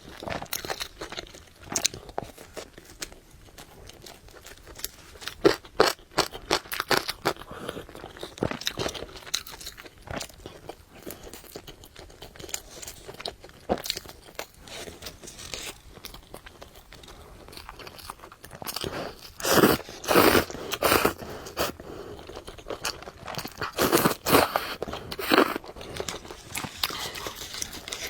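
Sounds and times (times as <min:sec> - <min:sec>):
wet chewing: 0:00.1 - 0:28.0
crunchy bites: 0:12.0 - 0:28.0.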